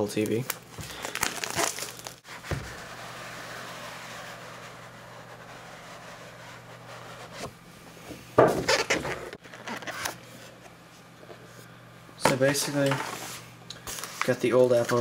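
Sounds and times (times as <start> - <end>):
packaging scraping rustle: 0.1 - 3.0, 13.9 - 15.0.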